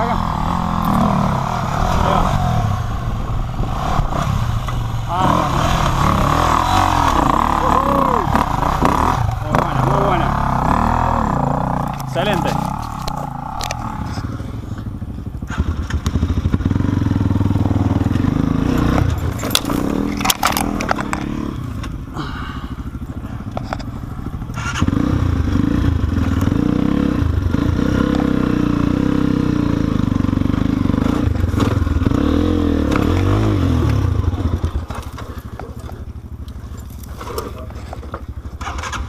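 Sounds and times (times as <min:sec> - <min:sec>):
dirt bike engine revving: 0:00.0 - 0:39.0
rocks striking bike: 0:11.8 - 0:13.9, 0:18.1 - 0:22.4, 0:32.8 - 0:39.0.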